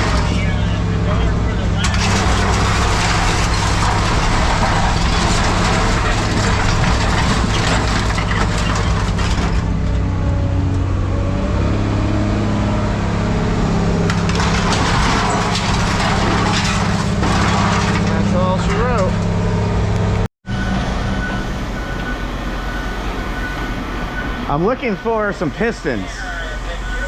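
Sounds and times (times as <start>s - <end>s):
scrap metal clattering: 0.0s - 0.8s, 1.8s - 9.8s, 14.0s - 19.4s
heavy engine running: 0.0s - 27.0s.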